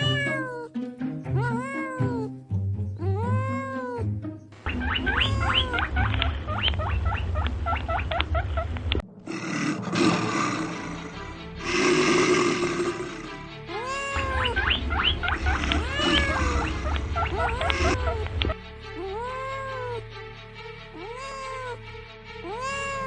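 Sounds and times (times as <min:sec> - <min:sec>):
cat meowing: 0:00.0 - 0:00.7, 0:01.4 - 0:02.3, 0:03.2 - 0:04.0, 0:04.8 - 0:06.2, 0:13.7 - 0:20.0, 0:21.0 - 0:21.8, 0:22.4 - 0:23.0
rough noisy growl: 0:09.2 - 0:13.6.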